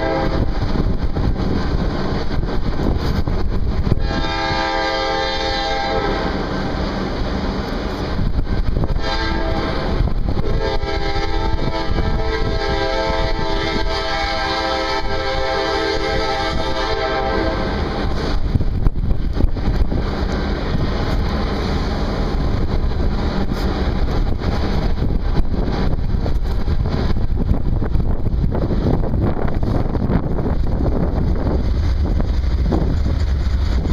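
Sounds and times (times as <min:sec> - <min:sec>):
locomotive horn blast: 0:00.0 - 0:00.6, 0:03.9 - 0:06.7, 0:08.8 - 0:18.2
freight train rumble: 0:00.0 - 0:33.9.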